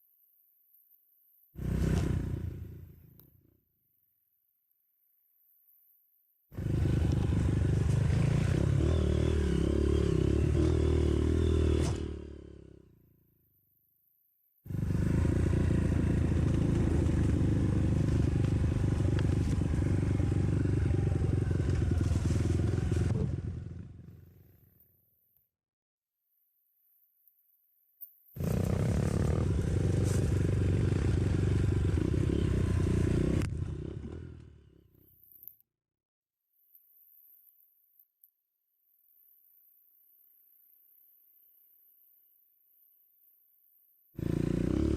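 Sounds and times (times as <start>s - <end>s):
motorcycle engine running hard: 1.6s - 3.0s, 6.6s - 12.8s, 14.7s - 24.5s, 28.4s - 34.7s, 44.2s - 44.9s.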